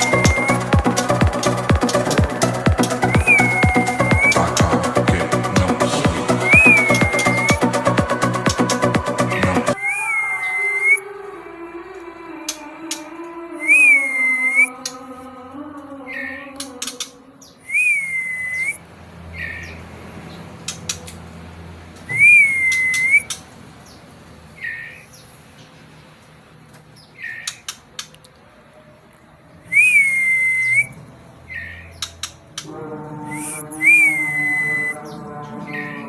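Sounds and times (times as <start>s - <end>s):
songbird whistled call: 0.0s - 0.7s, 2.9s - 4.6s, 6.4s - 7.8s, 17.6s - 18.8s, 22.1s - 23.4s, 29.7s - 31.0s
sharp clicks: 16.6s - 17.1s.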